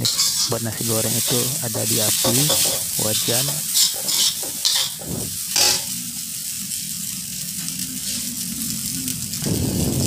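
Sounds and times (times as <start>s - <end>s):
metal spatula scraping wok: 0.0s - 6.0s
rice sizzling in a wok: 0.0s - 10.0s.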